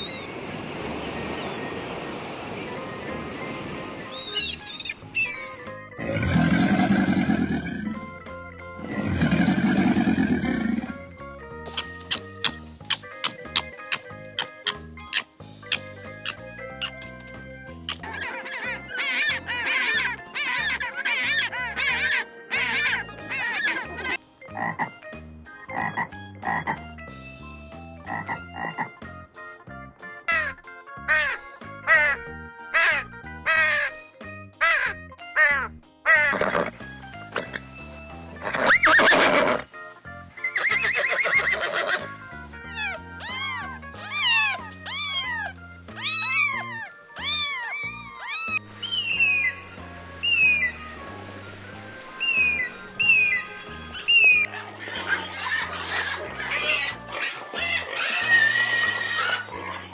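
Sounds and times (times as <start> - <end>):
background music: 0.0 - 59.9
animal calls: 2.6 - 8.2, 11.7 - 17.0, 17.9 - 24.2, 34.6 - 39.8, 40.4 - 51.0, 52.1 - 59.9
frog croaking: 36.2 - 39.7, 40.4 - 49.5.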